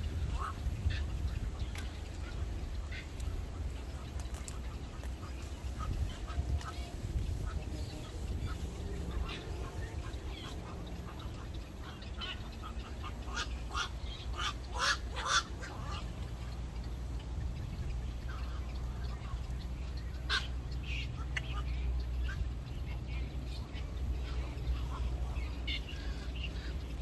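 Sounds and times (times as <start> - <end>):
birds calling: 0.0 - 27.0
steady low rumble: 0.0 - 27.0.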